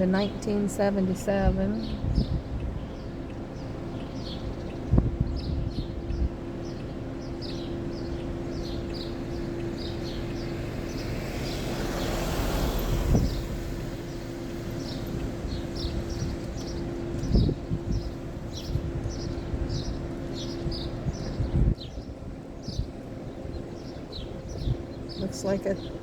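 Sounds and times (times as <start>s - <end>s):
slow vehicle humming: 0.0s - 26.0s
vehicle passing by: 8.6s - 18.1s.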